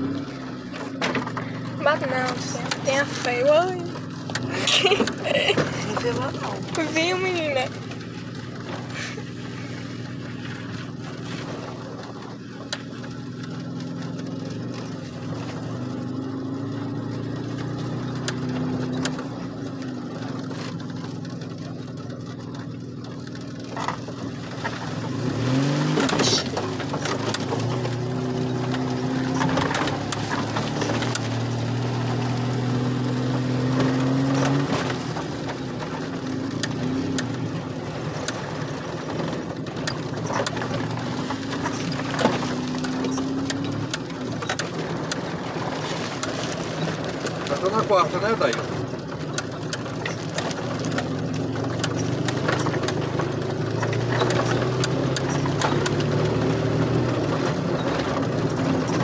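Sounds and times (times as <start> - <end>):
car engine changing gear: 0.0 - 59.0.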